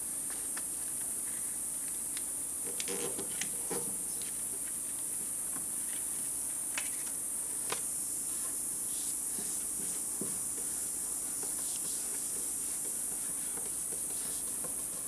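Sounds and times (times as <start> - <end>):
high-pitched insect chorus: 8.0 - 15.0.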